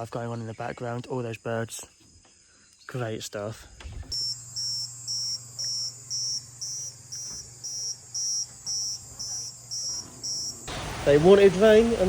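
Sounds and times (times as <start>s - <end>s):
insects chirping: 0.0s - 12.0s
high-pitched insect whine: 4.1s - 12.0s.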